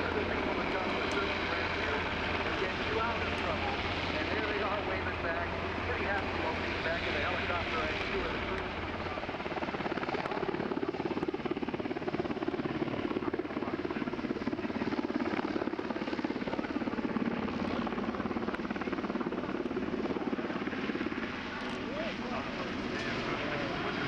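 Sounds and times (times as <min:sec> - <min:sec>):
helicopter rotors chopping: 0:00.0 - 0:24.0.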